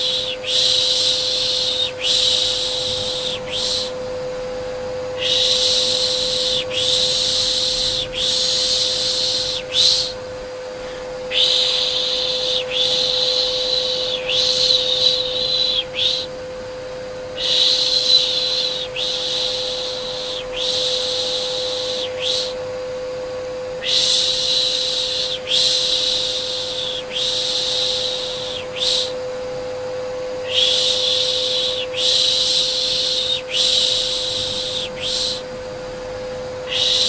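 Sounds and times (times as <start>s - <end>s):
person shushing: 0.0s - 4.0s, 5.2s - 10.2s, 10.8s - 16.3s, 23.8s - 29.2s, 30.4s - 35.5s, 36.7s - 37.0s
vacuum cleaner hum: 0.0s - 37.0s.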